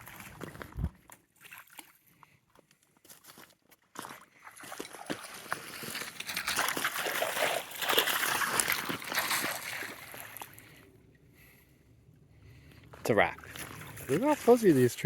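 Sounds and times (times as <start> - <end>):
water splashing among rocks: 4.6 - 10.6.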